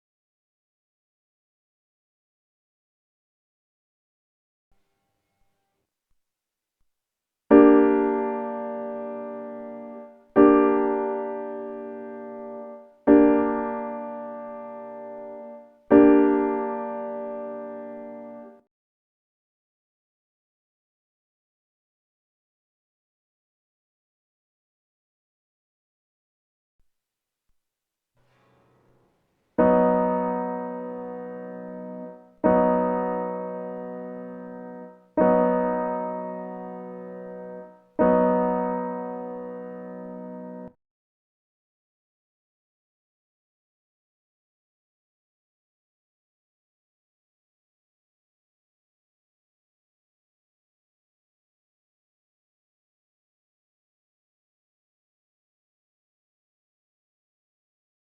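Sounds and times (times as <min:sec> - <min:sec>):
piano chords: 0:07.5 - 0:18.6, 0:28.3 - 0:40.8.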